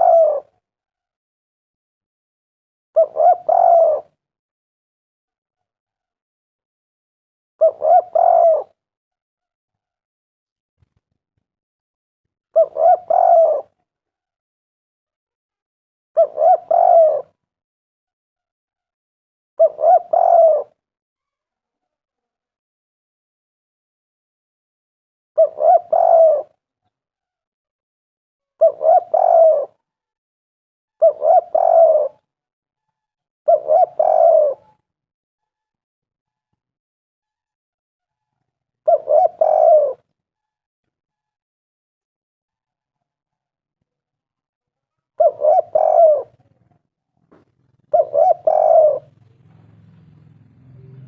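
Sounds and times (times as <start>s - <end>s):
dove cooing: 0.0s - 0.5s, 3.0s - 4.2s, 7.6s - 8.8s, 12.6s - 13.8s, 16.2s - 17.4s, 19.6s - 20.8s, 25.4s - 26.6s, 28.6s - 29.8s, 31.0s - 32.2s, 33.5s - 34.8s, 38.8s - 40.1s, 45.2s - 51.0s.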